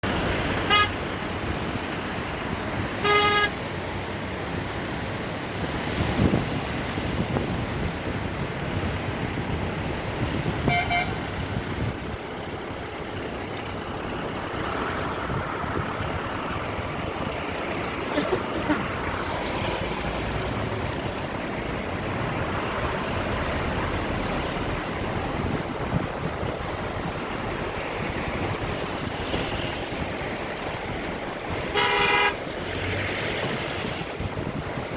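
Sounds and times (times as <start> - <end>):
road vehicle noise: 0.0 - 34.9
vehicle horn honking: 0.6 - 1.0, 3.0 - 3.6, 10.6 - 11.3, 31.7 - 32.4.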